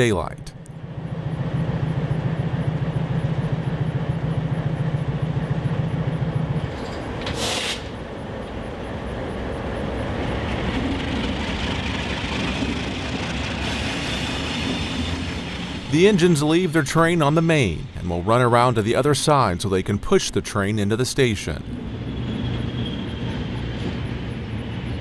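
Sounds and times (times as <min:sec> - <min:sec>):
diesel locomotive engines humming: 0:00.0 - 0:25.0
hiss of released air: 0:07.2 - 0:08.0.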